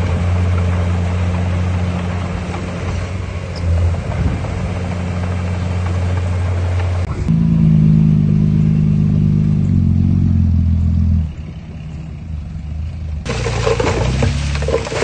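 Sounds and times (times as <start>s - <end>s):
heavy diesel engine running: 0.0s - 15.0s
rough rattling and crackling: 13.2s - 15.0s.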